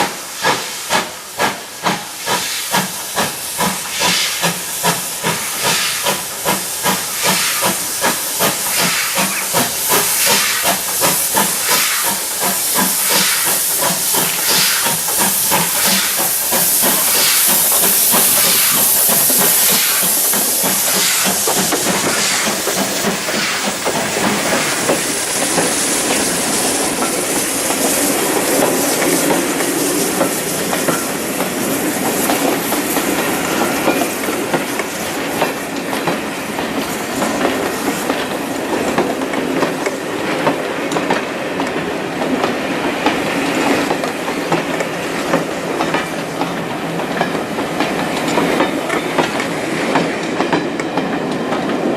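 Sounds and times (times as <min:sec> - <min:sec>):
loud steam hiss: 0:00.0 - 0:51.9
steam locomotive chuffing: 0:00.0 - 0:51.9
train rumbling past: 0:00.0 - 0:51.9.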